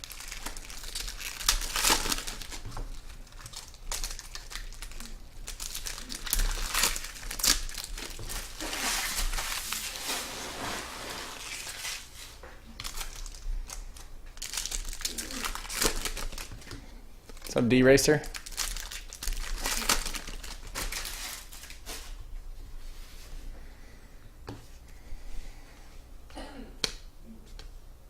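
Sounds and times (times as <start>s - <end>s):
card pack wrappers crinkling and tearing: 0.0s - 10.3s, 11.4s - 22.2s.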